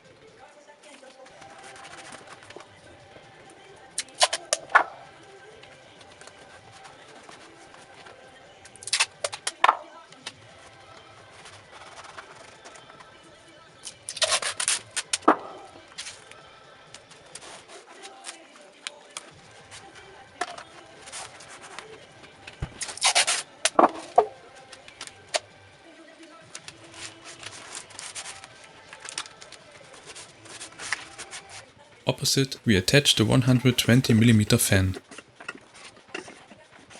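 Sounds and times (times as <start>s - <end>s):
adhesive tape pulled off roll: 22.8s - 23.4s.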